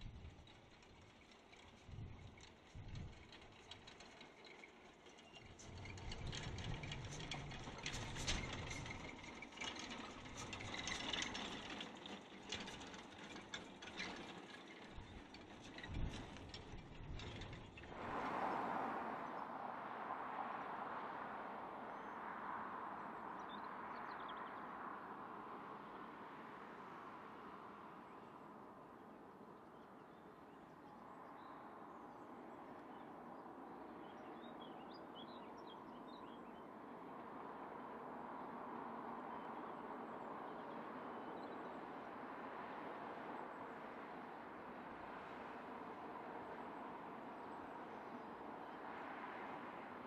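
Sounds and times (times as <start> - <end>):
train wagons rattling and clanking: 0.0 - 18.0.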